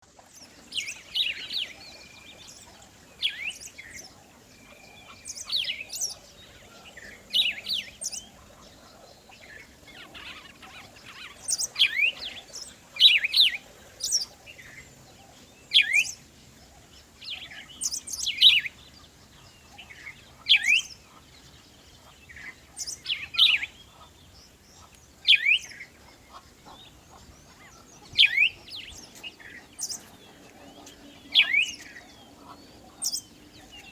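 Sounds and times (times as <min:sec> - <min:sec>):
bird singing high chirps: 0:15.6 - 0:16.3, 0:17.2 - 0:24.1, 0:25.2 - 0:33.9.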